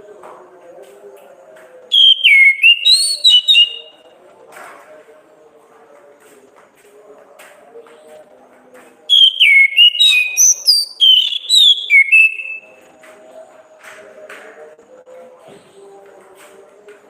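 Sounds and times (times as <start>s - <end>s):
thrush singing whistled notes: 1.9s - 4.0s, 9.1s - 12.7s.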